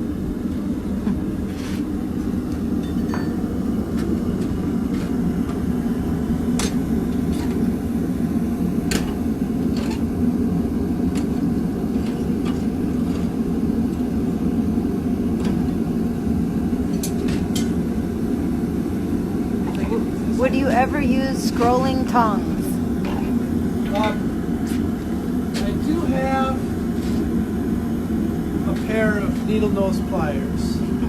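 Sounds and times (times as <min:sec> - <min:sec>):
forge roaring: 0:00.0 - 0:31.0.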